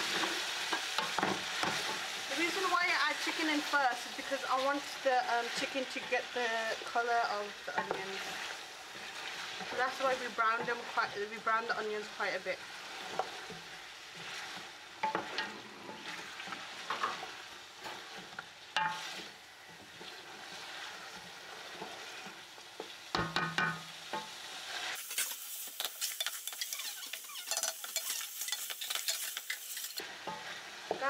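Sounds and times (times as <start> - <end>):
food sizzling in oil: 0.0 - 31.0
wooden spatula scraping pot: 7.7 - 11.2, 25.8 - 31.0.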